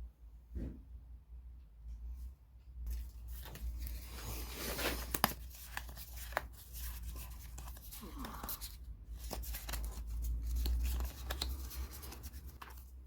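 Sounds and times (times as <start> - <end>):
rustling and scraping: 2.9 - 12.9.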